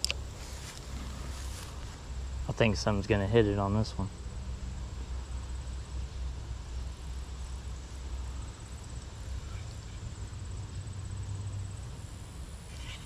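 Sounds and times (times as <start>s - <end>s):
highway traffic rumble: 0.0s - 13.0s
insect trilling: 6.8s - 13.0s.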